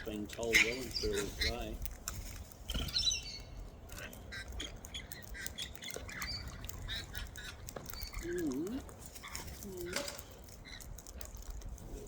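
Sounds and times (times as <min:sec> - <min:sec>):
cockatoo squawk: 0:00.0 - 0:01.7
high chirping calls: 0:00.0 - 0:01.8, 0:02.7 - 0:08.5.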